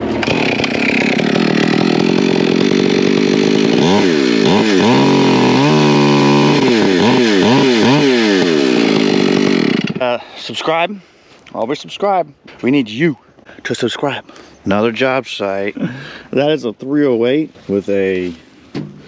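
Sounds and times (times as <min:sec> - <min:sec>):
engine-driven saw cutting wood: 0:00.0 - 0:10.9.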